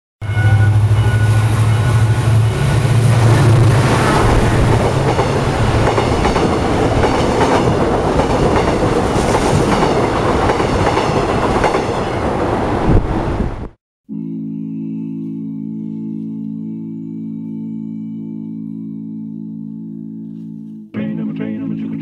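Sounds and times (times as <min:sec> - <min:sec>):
train engine drone: 0:00.2 - 0:11.4
train wheels clacking on rail joints: 0:04.2 - 0:12.0.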